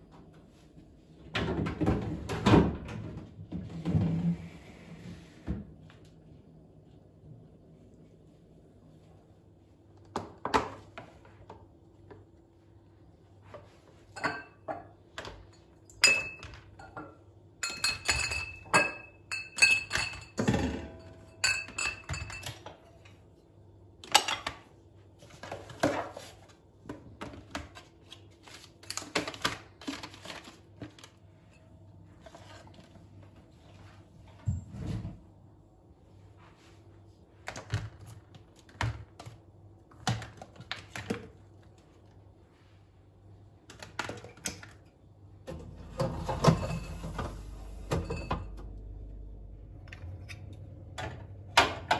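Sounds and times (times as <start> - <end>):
dishes knocking and clinking: 14.2 - 22.8, 45.5 - 48.7.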